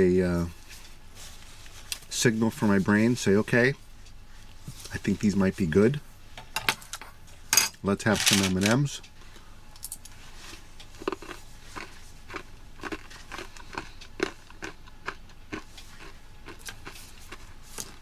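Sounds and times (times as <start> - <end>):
chewing crunchy candies: 10.5 - 18.0.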